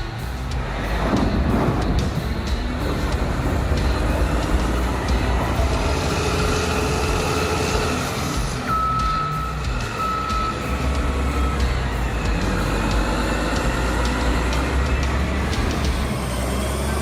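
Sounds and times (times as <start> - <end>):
diesel engine rumbling: 0.0 - 17.0
back-up alarm beeping: 2.6 - 16.1.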